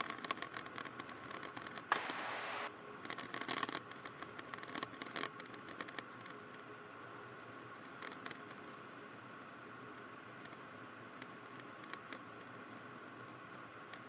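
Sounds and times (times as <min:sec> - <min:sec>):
burst of loud hiss: 0:01.9 - 0:02.7
crackles and clicks: 0:01.9 - 0:02.7
headset intercom hiss: 0:01.9 - 0:02.7.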